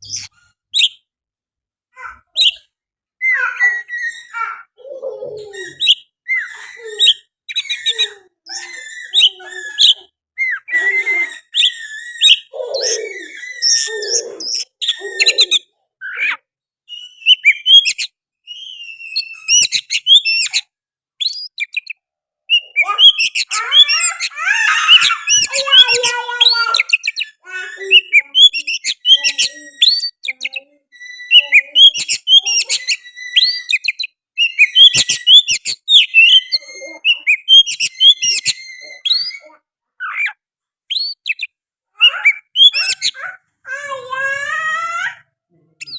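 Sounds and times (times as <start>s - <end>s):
songbird singing varied song: 24.8s - 39.5s.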